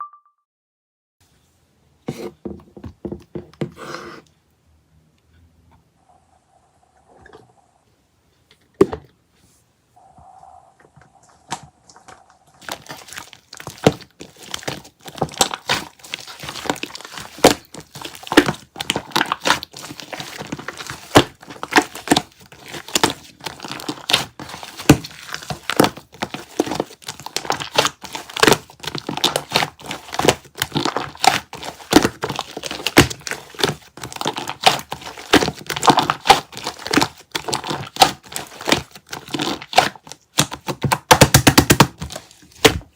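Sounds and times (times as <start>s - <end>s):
slime crackling and popping: 11.9s - 42.0s.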